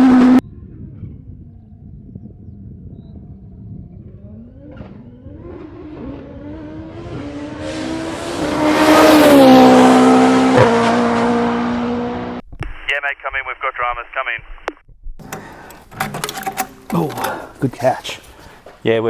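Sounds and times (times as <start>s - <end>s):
race car accelerating past: 3.6s - 12.4s.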